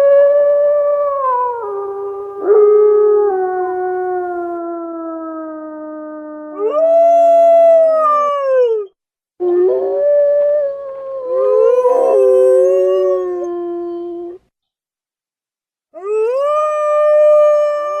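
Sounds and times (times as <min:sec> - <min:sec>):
wolves howling: 0:01.2 - 0:04.6, 0:09.6 - 0:13.8.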